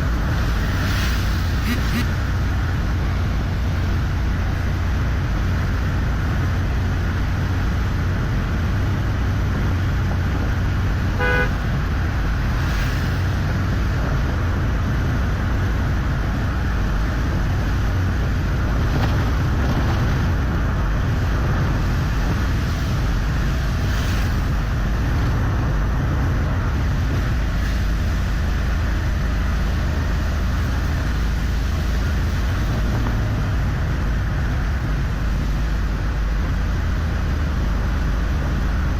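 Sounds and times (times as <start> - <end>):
vehicle driving on highway: 0.0 - 38.9
car horn toot: 1.6 - 2.3, 11.1 - 11.7.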